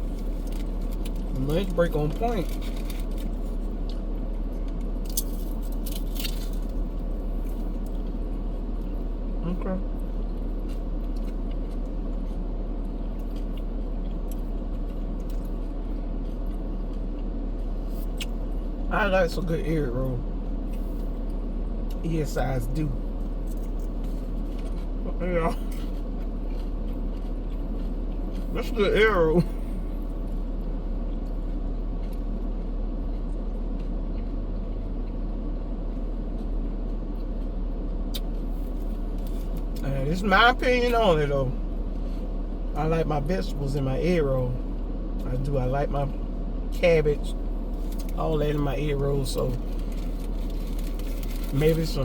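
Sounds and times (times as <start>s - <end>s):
person chewing crispy food: 0.0s - 9.3s, 9.9s - 18.8s, 23.0s - 40.3s, 47.3s - 52.0s.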